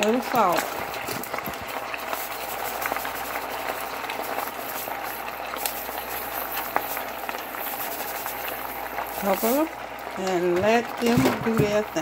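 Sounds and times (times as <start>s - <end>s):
potatoes sizzling in a skillet: 0.0s - 12.0s.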